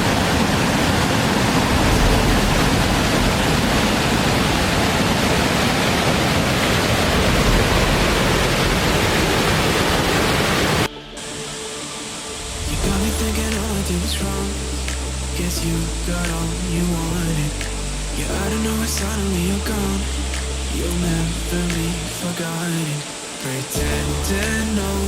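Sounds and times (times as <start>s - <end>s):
waterfall roaring: 0.0s - 25.0s
quiet music: 10.8s - 25.0s.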